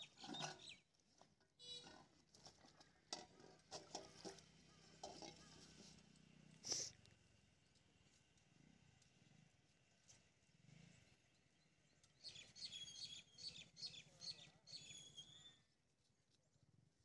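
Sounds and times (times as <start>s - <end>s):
bird chirping: 0.0s - 0.9s, 11.2s - 15.6s.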